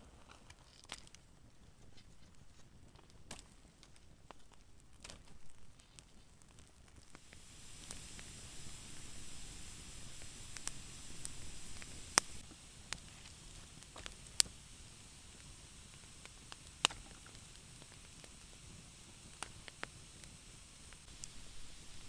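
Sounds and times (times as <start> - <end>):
campfire burning with hiss: 2.9 - 22.0
wood popping: 7.2 - 22.0.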